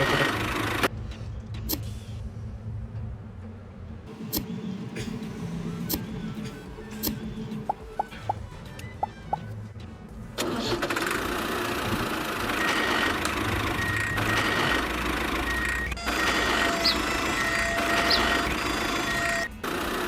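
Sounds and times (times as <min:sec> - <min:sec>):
motor running: 0:00.0 - 0:00.9, 0:10.4 - 0:20.0.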